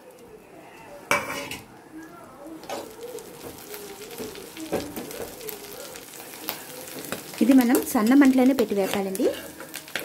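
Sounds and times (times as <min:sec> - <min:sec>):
leaves sizzling in hot fat: 0:02.0 - 0:10.0.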